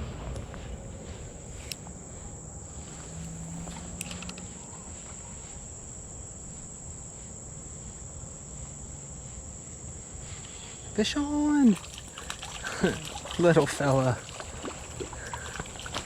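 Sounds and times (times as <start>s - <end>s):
low rumble: 0.0s - 6.3s
insects trilling: 0.0s - 16.0s.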